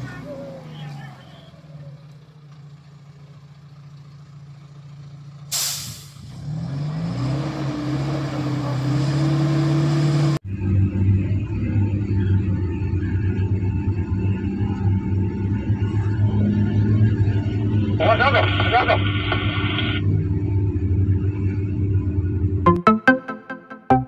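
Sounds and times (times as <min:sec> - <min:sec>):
diesel truck engine: 0:00.0 - 0:22.8
air-brake hiss: 0:05.5 - 0:06.2.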